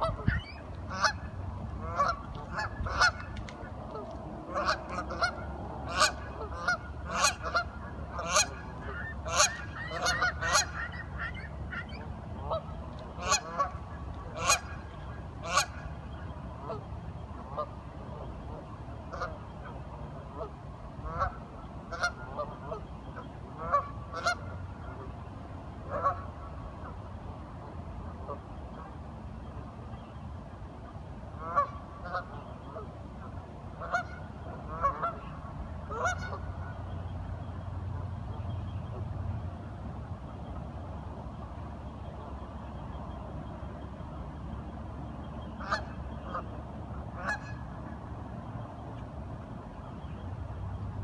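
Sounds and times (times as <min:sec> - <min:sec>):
waterfowl calling: 0:00.0 - 0:25.2, 0:25.9 - 0:27.0, 0:31.4 - 0:37.6, 0:45.3 - 0:48.1
low steady rumble: 0:00.0 - 0:51.0.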